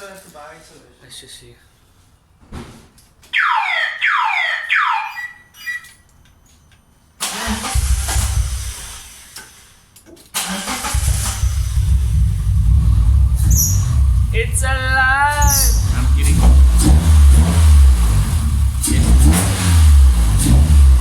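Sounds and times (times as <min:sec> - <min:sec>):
falling whistles: 0:03.4 - 0:06.0
car engine cranking: 0:07.2 - 0:21.0.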